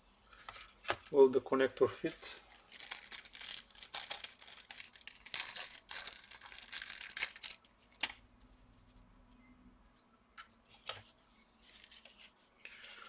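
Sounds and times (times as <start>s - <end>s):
rustling and crinkling of parts: 1.9s - 8.2s.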